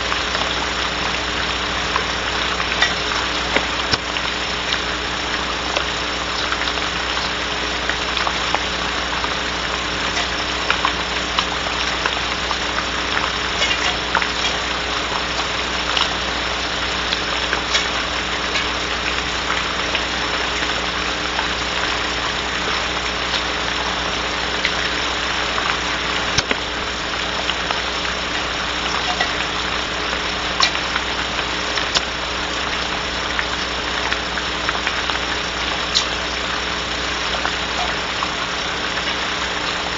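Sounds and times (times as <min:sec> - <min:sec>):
electrical hum: 0:00.0 - 0:39.9
rain hissing on wooden box: 0:00.0 - 0:39.9
small ticks: 0:30.6 - 0:31.0.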